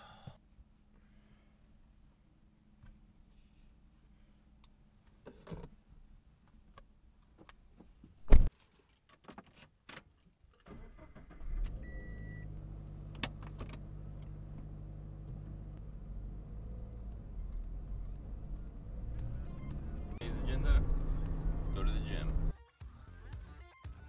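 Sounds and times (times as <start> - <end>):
loud thump: 8.3 - 8.5
keys jangling: 8.5 - 10.9
car engine starting and idling: 10.6 - 22.5.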